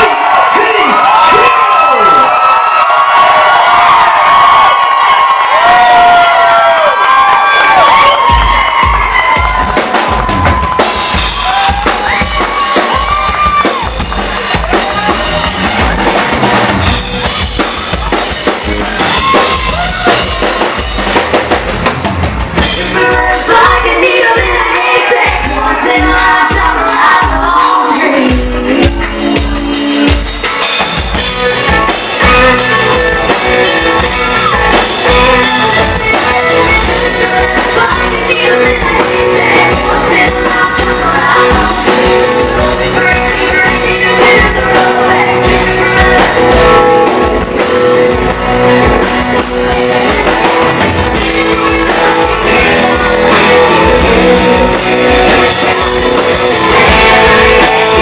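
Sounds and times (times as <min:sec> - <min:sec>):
rock band playing: 0:00.0 - 0:58.0
guitar: 0:06.8 - 0:58.0
drum kit beat: 0:07.1 - 0:58.0
person singing: 0:22.6 - 0:30.4, 0:31.5 - 0:58.0.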